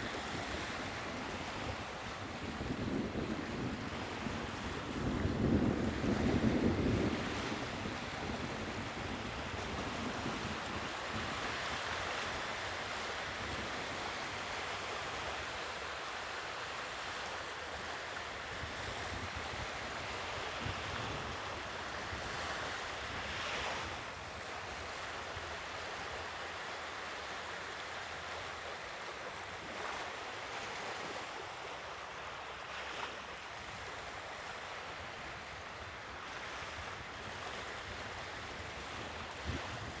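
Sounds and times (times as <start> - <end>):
sea waves washing ashore: 0.0 - 40.0
wind buffeting microphone: 0.2 - 11.4.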